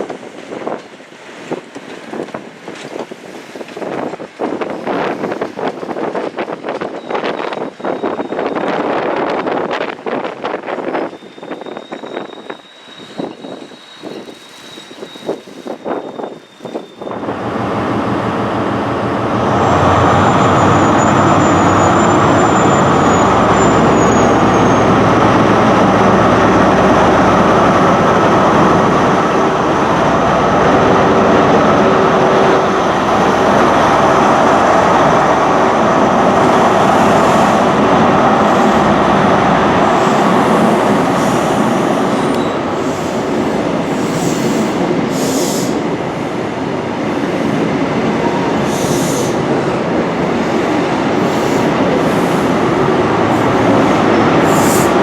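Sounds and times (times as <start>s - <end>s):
train wheels rushing on rails: 0.0s - 55.0s
high wheel squeal: 6.9s - 8.9s, 10.8s - 17.3s, 19.6s - 27.4s, 39.8s - 45.8s.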